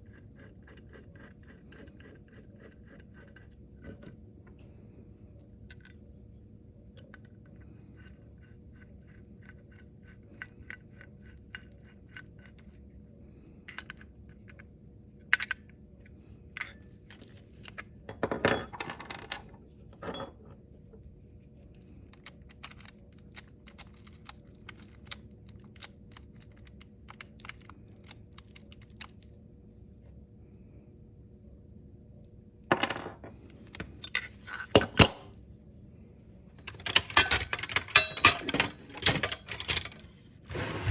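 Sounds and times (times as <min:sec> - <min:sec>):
metal parts clicking and clinking: 0:16.6 - 0:20.4, 0:32.7 - 0:35.3, 0:36.6 - 0:40.2
metal tools rattling: 0:36.6 - 0:40.2.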